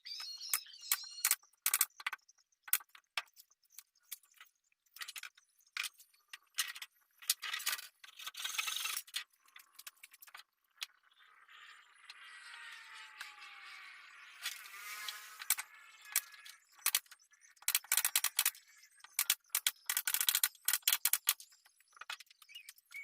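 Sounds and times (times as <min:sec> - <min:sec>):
metallic clicks and clinks: 0:15.5 - 0:22.8.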